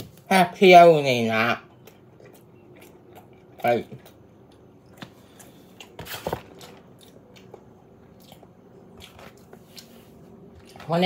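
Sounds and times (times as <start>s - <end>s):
person chewing food: 1.7s - 10.9s.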